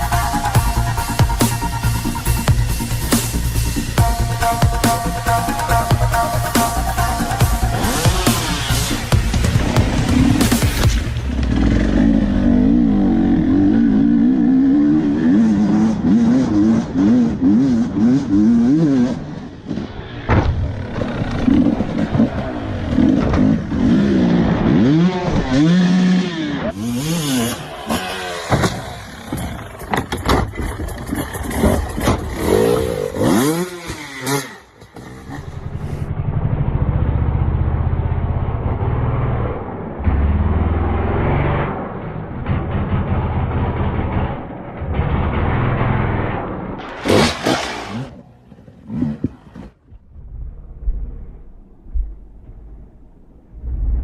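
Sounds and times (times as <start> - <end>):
dirt bike engine revving: 0.0 - 30.0, 31.1 - 49.8
clattering and knocks: 28.5 - 32.4
low engine rumble: 49.4 - 54.0.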